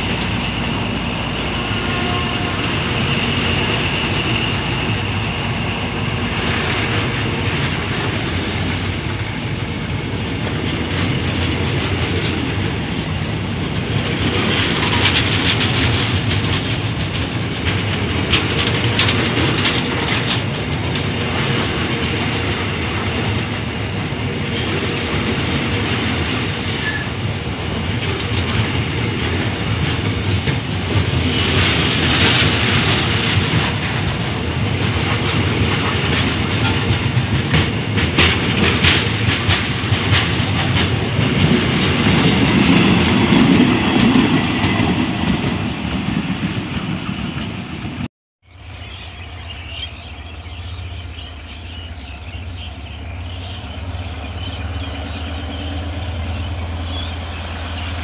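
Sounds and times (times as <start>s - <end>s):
steel wheels rumbling on rail: 0.0s - 58.0s
wheels clicking over rail joints: 10.4s - 47.6s.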